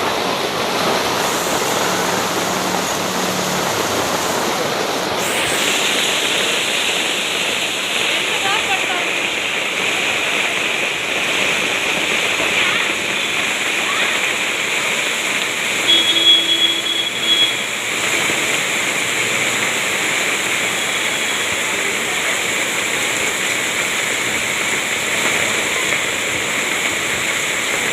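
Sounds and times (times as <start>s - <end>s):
heavy rain falling: 0.0s - 27.9s
brief steady tone: 5.2s - 7.3s.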